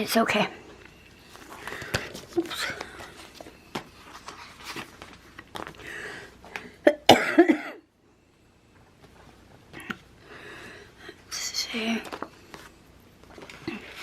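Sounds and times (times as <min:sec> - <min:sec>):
woman coughing: 0:06.8 - 0:07.9.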